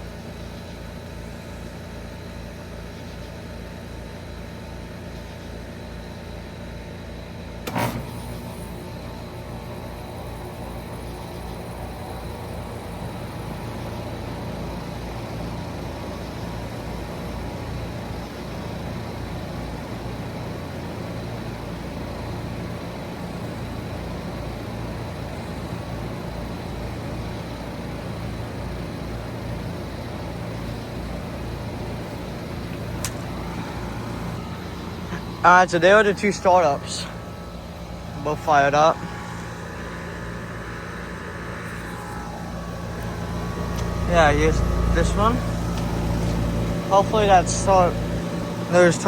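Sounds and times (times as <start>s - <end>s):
heat pump units humming: 0.0s - 49.0s.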